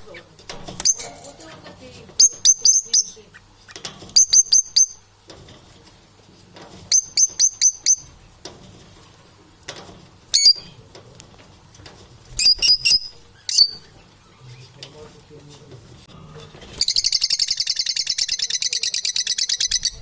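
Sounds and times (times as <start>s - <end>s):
parrots chirping: 0.0s - 1.2s, 2.2s - 5.1s, 6.9s - 8.2s, 10.3s - 10.8s, 12.4s - 14.8s, 16.8s - 20.0s.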